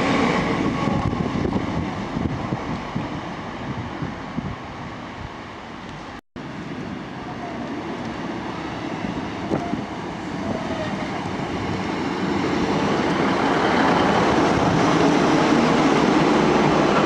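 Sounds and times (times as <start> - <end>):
diesel train engine: 5.8 - 17.0
train wheels on rails: 5.8 - 17.0.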